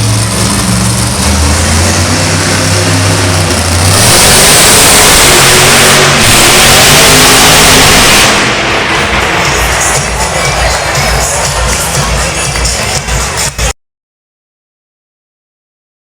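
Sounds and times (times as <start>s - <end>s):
truck engine revving: 0.0s - 13.7s.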